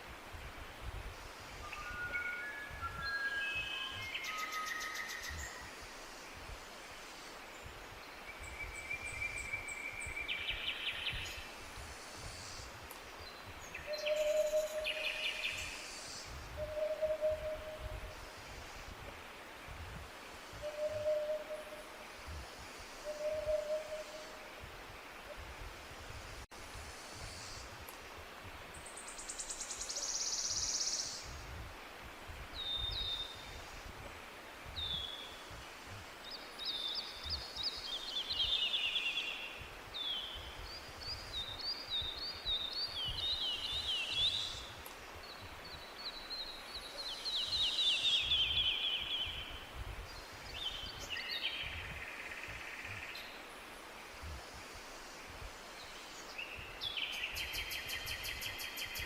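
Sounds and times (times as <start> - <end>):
background hiss: 0.0 - 59.0
songbirds singing and calling: 1.2 - 6.6, 7.2 - 18.7, 23.0 - 25.2, 32.3 - 33.9, 34.6 - 54.4, 55.0 - 59.0.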